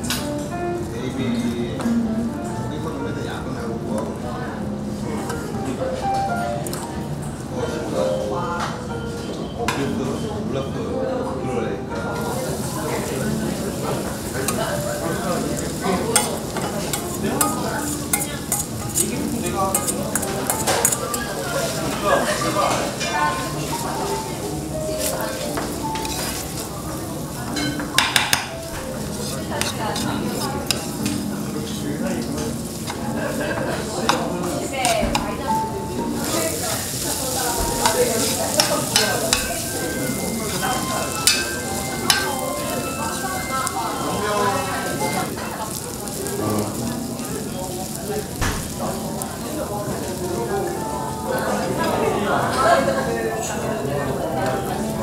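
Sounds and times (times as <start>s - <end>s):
food sizzling in a pan: 12.2s - 55.0s.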